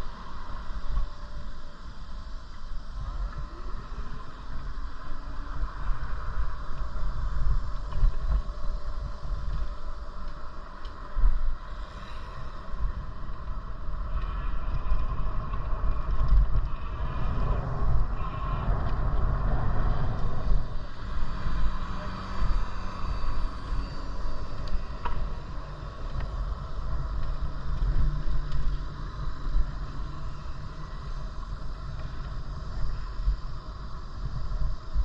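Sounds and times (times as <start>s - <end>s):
wind buffeting microphone: 11.0s - 35.0s
road noise: 11.7s - 31.6s.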